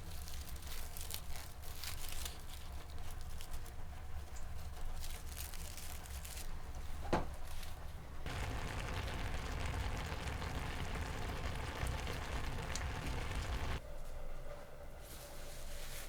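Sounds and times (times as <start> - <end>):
steady rain: 8.3 - 13.8.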